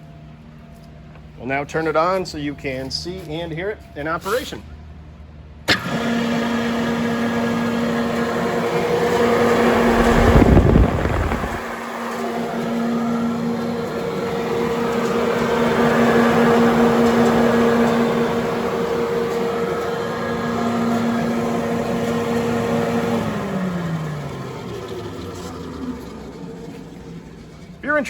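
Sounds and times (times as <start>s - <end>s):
exhaust blower humming: 5.6s - 28.0s
low rumble: 9.3s - 12.0s.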